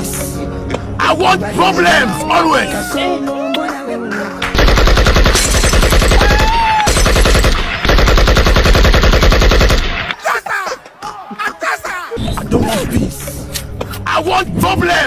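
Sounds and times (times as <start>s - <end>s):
automatic gunfire: 4.5s - 10.1s.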